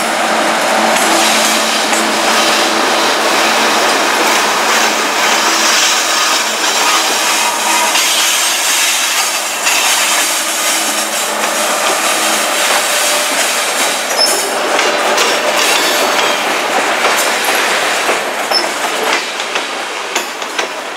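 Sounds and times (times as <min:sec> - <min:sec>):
train wheels clattering over rail joints: 0:00.8 - 0:20.9.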